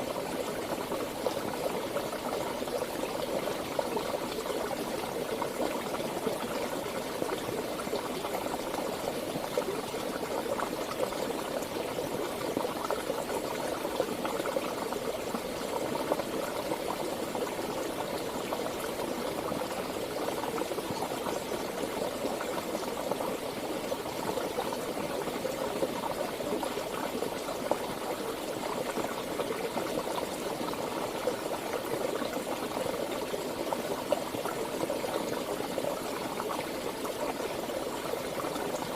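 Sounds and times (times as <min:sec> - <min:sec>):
stream water babbling: 0:00.0 - 0:38.9.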